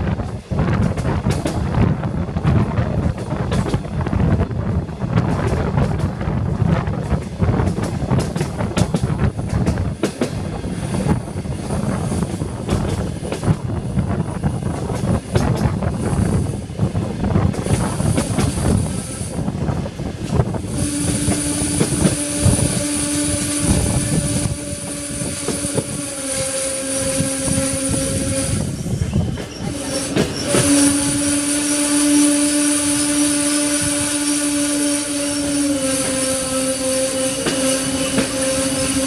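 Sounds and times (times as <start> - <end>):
train wheels rumbling on track: 0.0 - 39.0
metallic brake squeal: 25.8 - 32.3.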